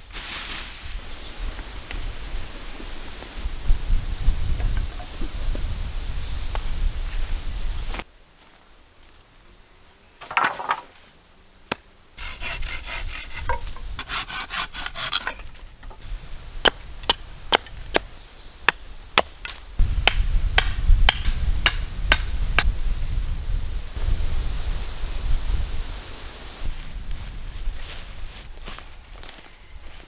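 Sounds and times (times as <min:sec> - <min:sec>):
rasping strokes on wood: 0:12.2 - 0:15.4
sharp blows on wood: 0:12.2 - 0:15.4, 0:18.7 - 0:22.8.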